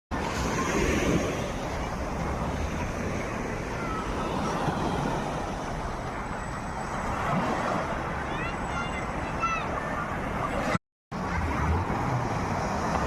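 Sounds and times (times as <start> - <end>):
sea surf washing on a beach: 0.2 - 6.4.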